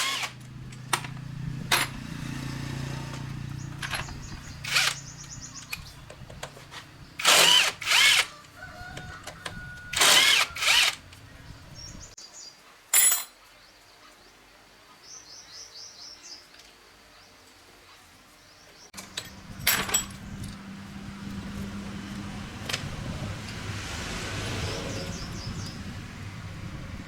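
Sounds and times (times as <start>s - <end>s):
power tool bursts: 0.0s - 0.4s, 4.6s - 5.1s, 7.2s - 8.3s, 9.9s - 11.0s
small birds chirping: 3.2s - 7.3s, 11.0s - 12.6s, 24.5s - 26.7s.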